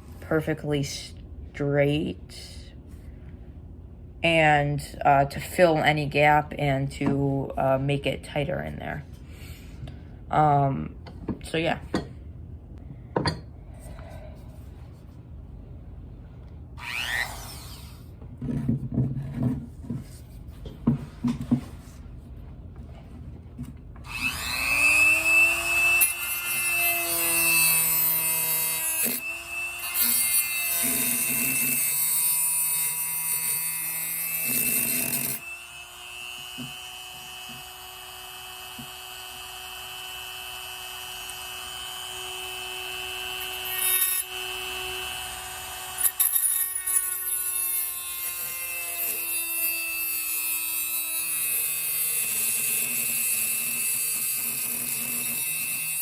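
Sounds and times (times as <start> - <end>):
rotary saw whining: 16.8 - 18.2, 24.0 - 56.0.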